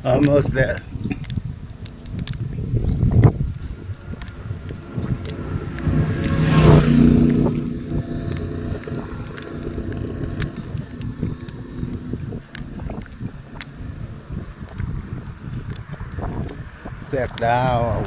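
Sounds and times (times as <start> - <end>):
vehicle driving past: 1.3 - 16.7.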